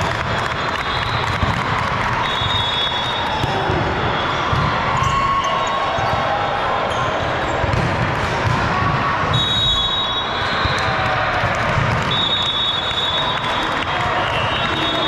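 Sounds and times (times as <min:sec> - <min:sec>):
sneakers squeaking: 0:02.2 - 0:07.9.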